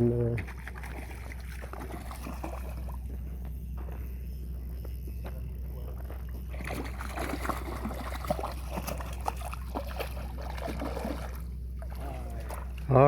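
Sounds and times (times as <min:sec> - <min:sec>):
steady low hum: 0:00.0 - 0:13.0
water splashing against boat: 0:00.4 - 0:03.0, 0:06.5 - 0:13.0
fish splashing at surface: 0:06.5 - 0:12.8.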